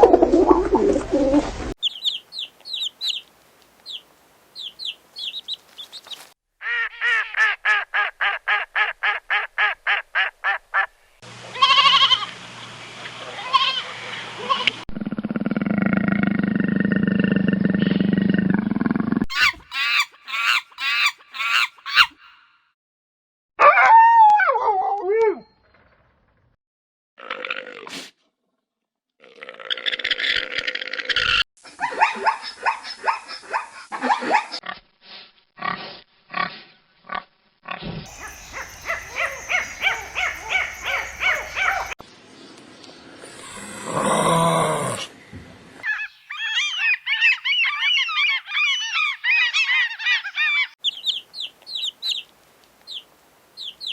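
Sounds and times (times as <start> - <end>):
animal long rough low call: 14.9 - 19.2, 43.1 - 45.2
pigs squealing: 19.3 - 22.2, 29.4 - 34.7, 37.1 - 42.0, 45.8 - 50.8
animal yelping: 19.3 - 22.4, 38.1 - 42.0, 45.8 - 50.8.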